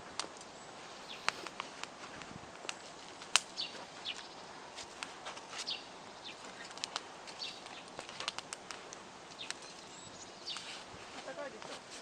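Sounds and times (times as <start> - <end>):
campfire crackling and popping: 0.0 - 12.0
bird chirps: 0.5 - 1.4, 3.5 - 4.5, 5.6 - 7.9, 9.3 - 10.8.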